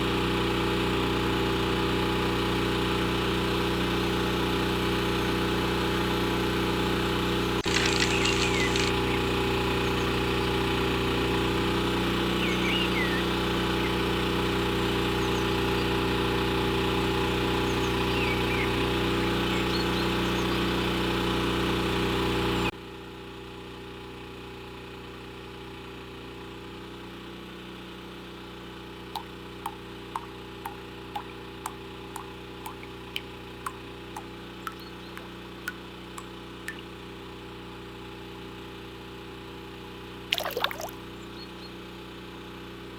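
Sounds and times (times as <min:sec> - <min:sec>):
short sharp ticks: 0:07.7 - 0:09.3
small electric motor humming: 0:07.7 - 0:10.0
faint steady hum: 0:29.2 - 0:37.0.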